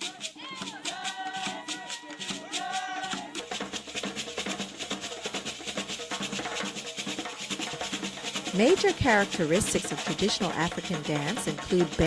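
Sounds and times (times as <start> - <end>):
percussion music with fast beat: 0.0 - 12.0.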